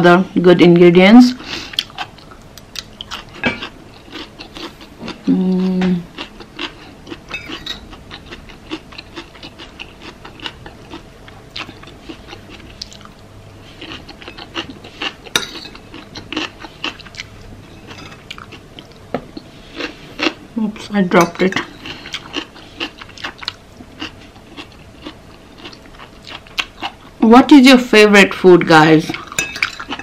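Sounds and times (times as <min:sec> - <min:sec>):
person chewing food: 0:01.6 - 0:20.5, 0:21.4 - 0:27.2, 0:29.1 - 0:30.0
person humming: 0:05.2 - 0:06.1
cutlery clinking against bowl: 0:07.3 - 0:07.8, 0:15.3 - 0:15.8, 0:17.9 - 0:18.3, 0:29.1 - 0:30.0.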